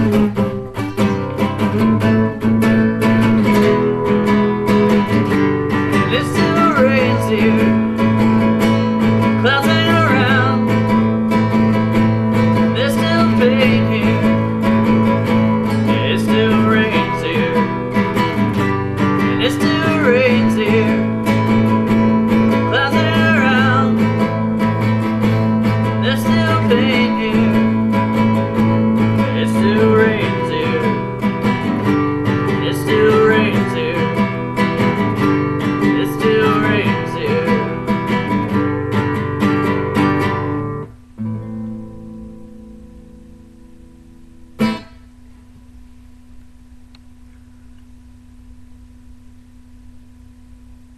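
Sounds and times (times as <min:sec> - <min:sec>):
acoustic guitar strumming chords: 0:00.0 - 0:50.8.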